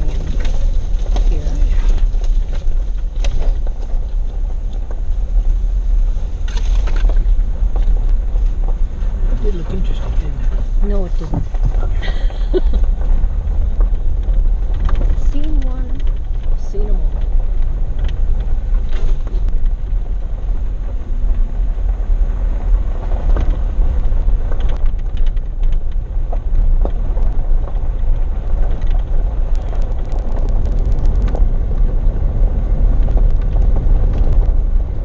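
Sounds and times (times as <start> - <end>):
engine and tyres rumbling on gravel: 0.0 - 35.0
gravel clicks: 0.0 - 35.0
rapid ticks: 28.7 - 31.4.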